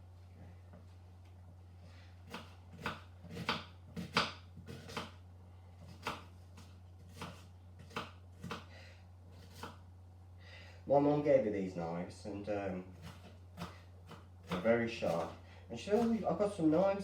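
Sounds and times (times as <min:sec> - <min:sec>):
knife chopping on cutting board: 0:02.3 - 0:05.2, 0:05.8 - 0:08.7, 0:09.4 - 0:09.8, 0:13.0 - 0:16.3.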